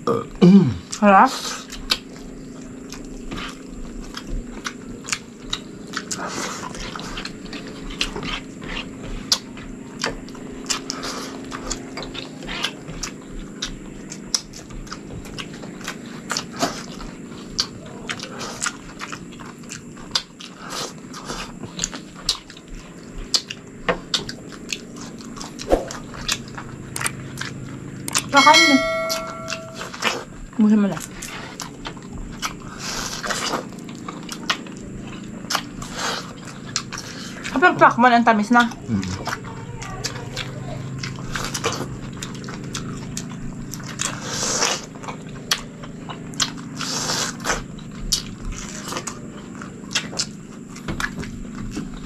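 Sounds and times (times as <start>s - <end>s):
wet chewing and lip-smacking: 0.8s - 28.4s, 29.9s - 52.0s
low steady hum: 26.1s - 31.2s.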